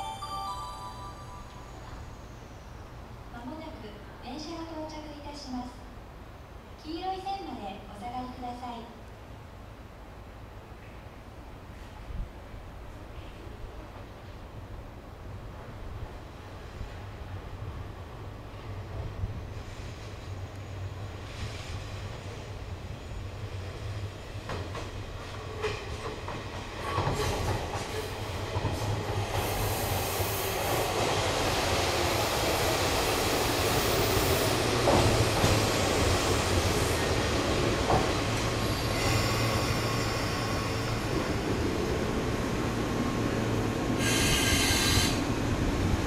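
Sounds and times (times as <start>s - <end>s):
rail clicks: 24.4s - 29.8s, 34.7s - 39.0s.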